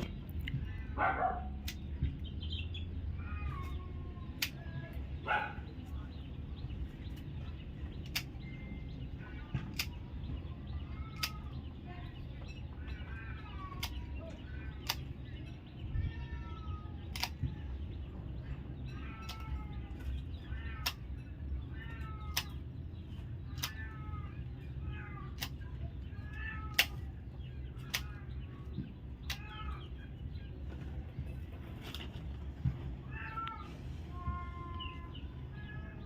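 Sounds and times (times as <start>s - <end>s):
sharp clicks: 7.9s - 8.6s, 9.5s - 10.2s, 11.1s - 11.6s, 12.9s - 15.5s, 17.0s - 17.5s, 22.0s - 22.7s, 23.4s - 24.0s, 25.3s - 25.8s, 26.6s - 29.8s
cat meowing: 15.8s - 17.6s, 18.4s - 22.6s, 23.5s - 28.6s, 29.2s - 30.0s, 33.0s - 36.0s.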